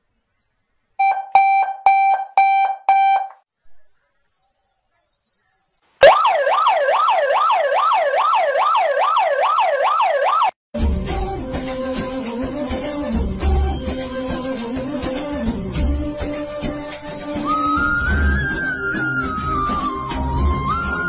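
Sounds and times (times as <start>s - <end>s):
short beeps with clicks: 1.0s - 3.4s
electronic siren wailing: 6.0s - 10.6s, 17.5s - 21.0s.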